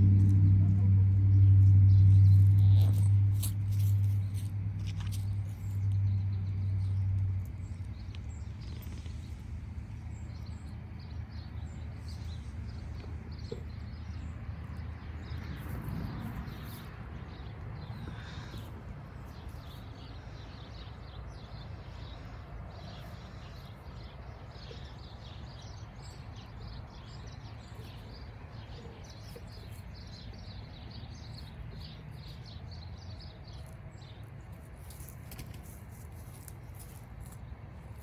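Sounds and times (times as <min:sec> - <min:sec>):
steady low rumble: 0:00.0 - 0:27.6
small birds chirping: 0:00.0 - 0:38.0.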